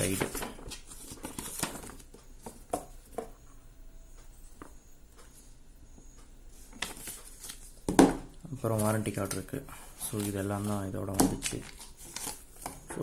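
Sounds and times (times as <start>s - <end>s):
paper rustling: 0.0s - 2.6s, 6.8s - 7.8s, 8.6s - 13.0s.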